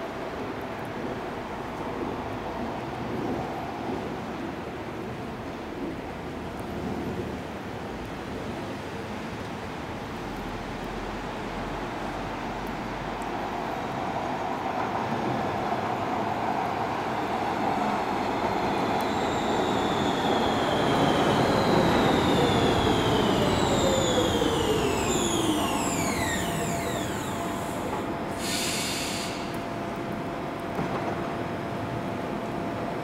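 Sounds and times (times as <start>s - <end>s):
metro train running on rails: 0.0s - 33.0s
electric motors whining: 21.7s - 27.9s
short hiss: 25.1s - 29.7s.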